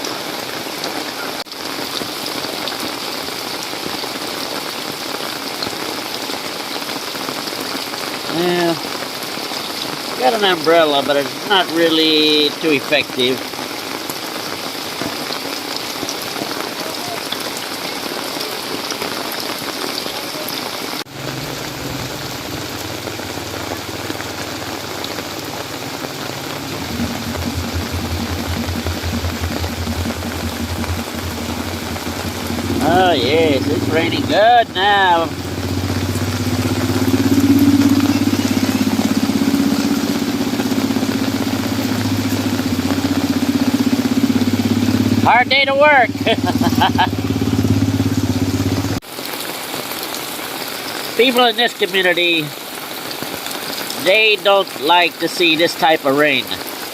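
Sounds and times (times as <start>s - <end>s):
heavy rain pouring: 0.0s - 56.9s
low hum: 21.1s - 43.4s
small motorcycle engine running: 21.1s - 45.4s, 46.1s - 49.0s.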